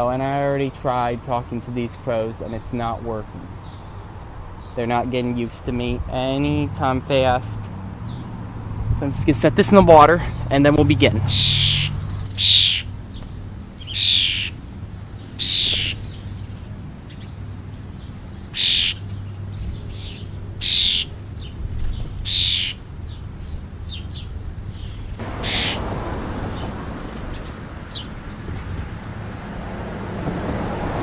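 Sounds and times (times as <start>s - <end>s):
bird harsh calls: 2.5s - 5.0s, 11.1s - 29.6s
steady rushing noise: 25.1s - 31.0s.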